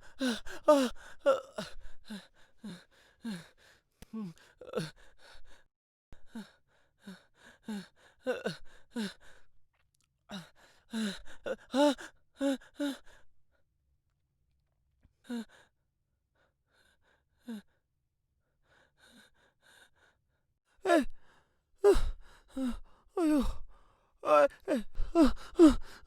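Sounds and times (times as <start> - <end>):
person panting heavily: 0.0 - 5.6.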